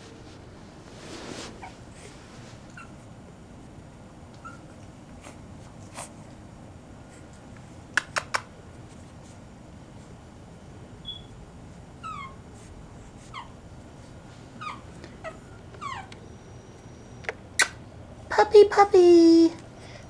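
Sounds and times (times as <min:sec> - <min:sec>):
rustle: 0:00.0 - 0:06.4
puppies squeaking: 0:04.4 - 0:04.7, 0:11.0 - 0:11.4, 0:12.0 - 0:13.6, 0:14.6 - 0:17.8
sharp clicks: 0:08.0 - 0:08.5.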